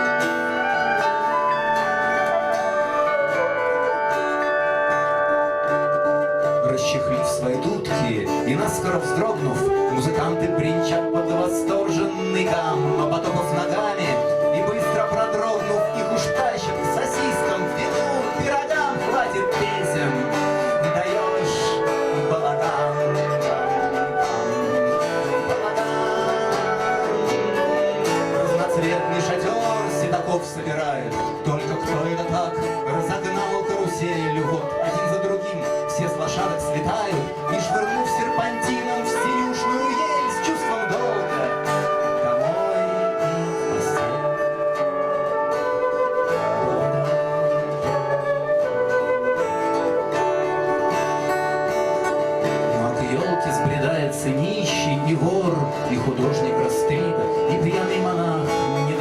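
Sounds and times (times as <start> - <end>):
flute-like wind melody: 0.0 - 59.0
plucked string instruments: 0.0 - 59.0
strummed acoustic guitar: 0.0 - 59.0
long held note: 39.5 - 52.6.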